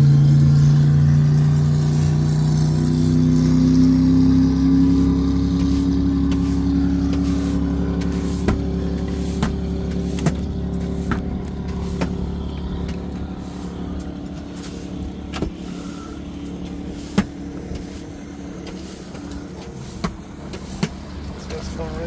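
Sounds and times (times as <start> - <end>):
motorboat engine running: 0.0 - 22.0.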